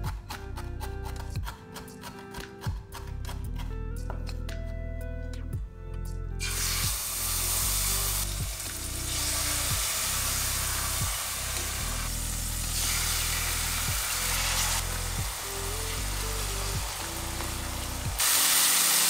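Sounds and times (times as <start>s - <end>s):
background music with bass line: 0.0s - 18.8s
chicken sizzling in hot oil: 6.4s - 19.0s.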